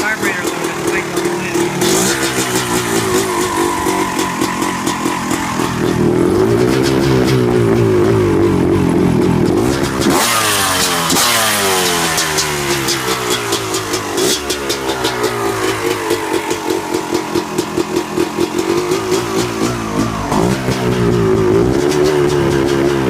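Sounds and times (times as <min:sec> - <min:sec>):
dirt bike engine idling unevenly: 0:00.0 - 0:23.0.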